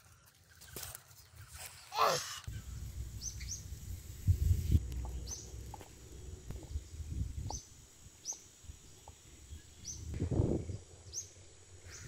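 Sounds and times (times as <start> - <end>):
bird chirping: 2.5 - 4.1, 4.8 - 12.0
low rumbling: 2.5 - 11.6.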